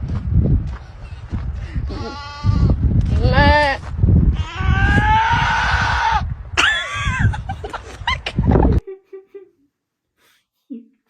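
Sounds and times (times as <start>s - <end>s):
low rumbling noise: 0.0s - 8.8s
bleat-like cries: 1.9s - 3.8s, 4.4s - 6.3s.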